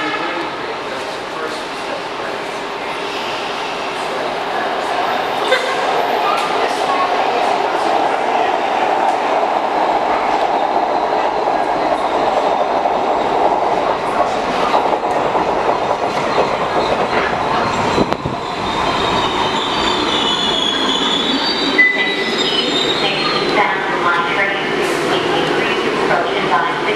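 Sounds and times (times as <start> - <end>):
train rumbling on track: 0.0 - 26.9
high wheel squeal: 17.6 - 23.5.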